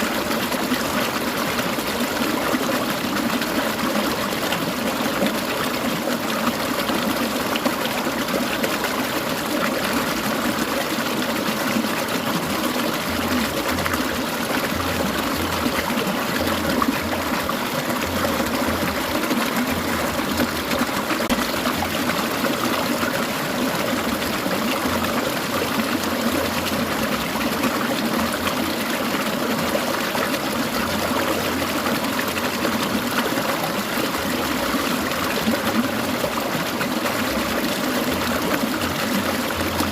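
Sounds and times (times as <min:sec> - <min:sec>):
water trickling over stones: 0:00.0 - 0:39.9.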